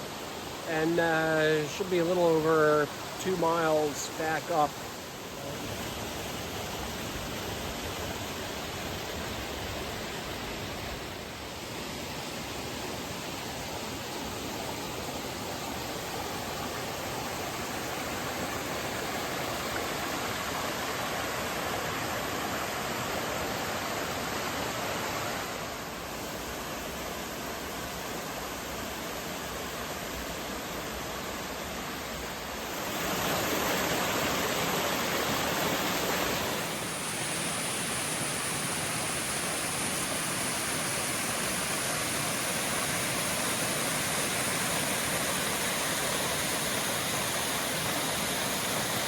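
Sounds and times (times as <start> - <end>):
river water rushing: 0.0 - 49.0.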